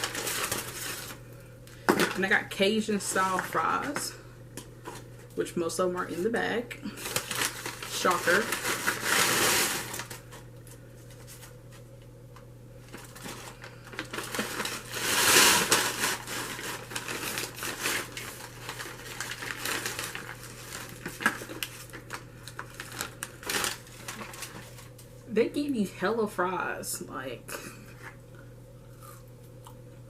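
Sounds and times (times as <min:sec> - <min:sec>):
paper bag rustling: 0:00.0 - 0:01.2, 0:07.0 - 0:11.8, 0:12.8 - 0:25.0.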